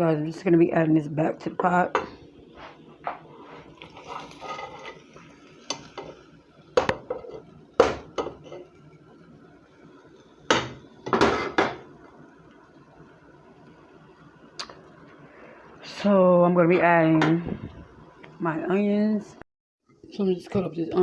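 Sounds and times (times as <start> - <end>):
metal utensils clanking in pot: 3.8 - 5.0.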